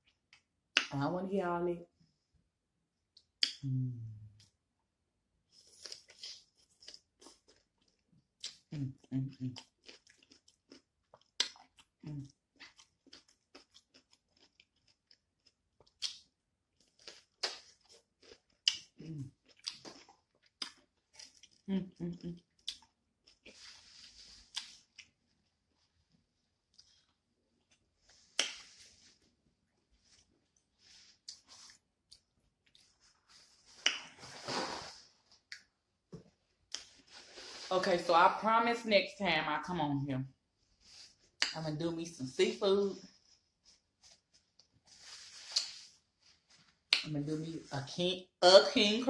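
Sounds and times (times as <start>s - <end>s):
chewing crunchy cucumber: 5.6s - 23.9s.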